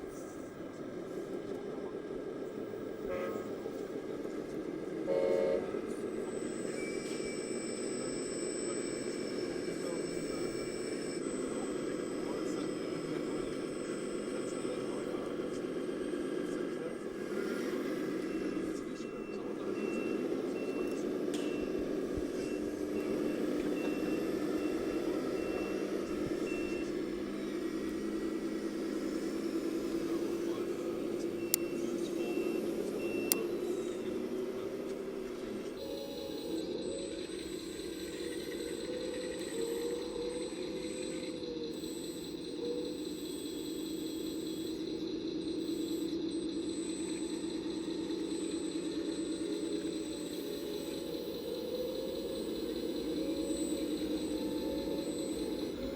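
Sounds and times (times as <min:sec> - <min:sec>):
steady background hum: 0:00.0 - 0:55.9
reversing beeper beeps: 0:01.6 - 0:55.9
electronic horn toot: 0:03.0 - 0:03.7, 0:05.0 - 0:07.8
faint brief electronic tone: 0:05.1 - 0:55.9.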